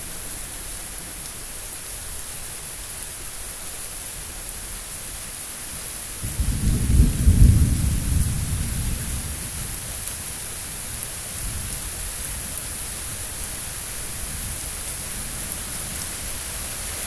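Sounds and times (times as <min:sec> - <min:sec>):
heavy rain hiss: 0:00.0 - 0:17.0
thunder rumble: 0:06.2 - 0:10.0.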